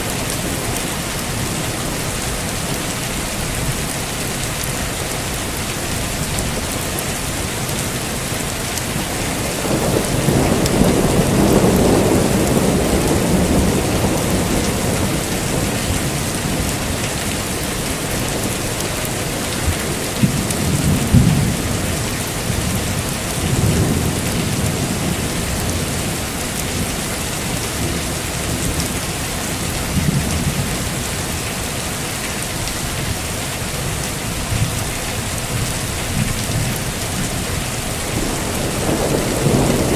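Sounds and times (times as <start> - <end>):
heavy rain: 0.0 - 39.9
thunder rumbling: 9.2 - 28.9, 35.6 - 39.9
thunder cracks: 38.1 - 39.9.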